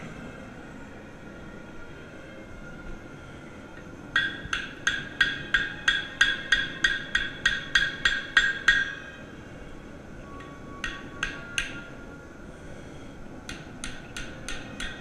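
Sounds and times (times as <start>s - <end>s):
hammer striking steel: 4.1s - 9.1s, 10.4s - 11.9s, 13.5s - 15.0s.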